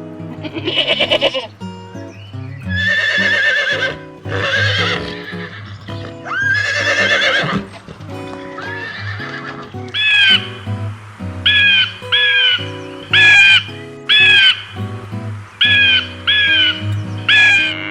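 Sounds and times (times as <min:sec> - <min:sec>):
animal calling with wavering pitch: 0:02.6 - 0:07.8, 0:08.5 - 0:10.7, 0:11.4 - 0:14.6, 0:15.7 - 0:17.9.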